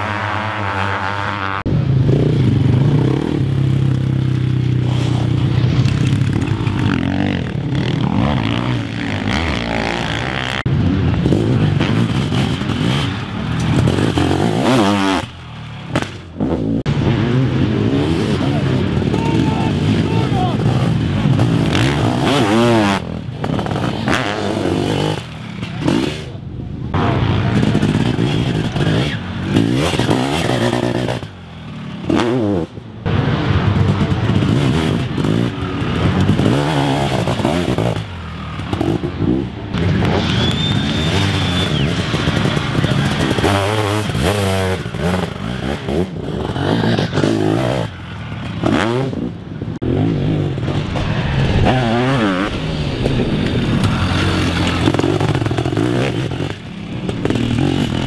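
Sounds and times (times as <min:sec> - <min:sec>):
racing engines revving: 0:00.0 - 0:58.0.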